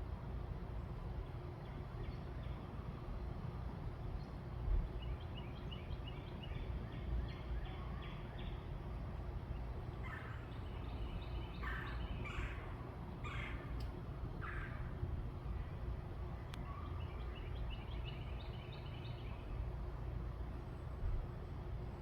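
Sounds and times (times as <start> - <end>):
birds chirping: 9.4 - 15.5, 16.5 - 19.7
harsh bird calls: 10.0 - 13.8.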